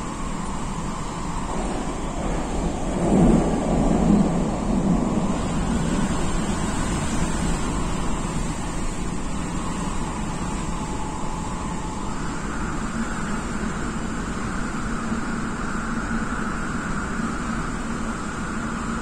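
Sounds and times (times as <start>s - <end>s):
faint motor whine: 0.0s - 19.0s
train wheels rumbling on rail: 0.0s - 19.0s.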